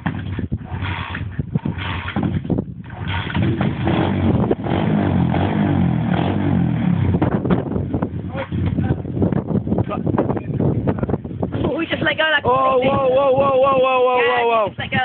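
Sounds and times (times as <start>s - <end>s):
motorbike engine revving: 0.0s - 8.7s.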